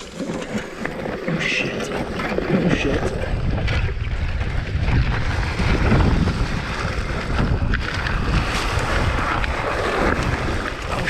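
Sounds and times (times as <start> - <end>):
bike clicking and rattling: 0.0 - 11.0
low rumble of bike tyres: 0.0 - 11.0
wind buffeting microphone: 0.0 - 11.0.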